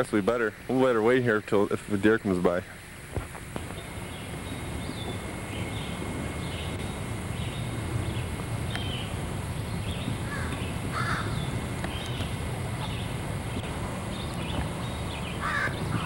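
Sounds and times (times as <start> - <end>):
steady low rumble: 0.0 - 16.0
short bird calls: 14.3 - 16.0.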